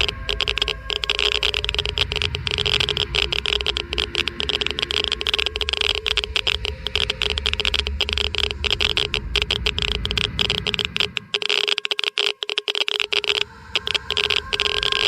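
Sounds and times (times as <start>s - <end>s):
steady low hum: 0.0s - 11.4s, 13.0s - 15.0s
geiger counter clicking rapidly: 0.0s - 15.0s.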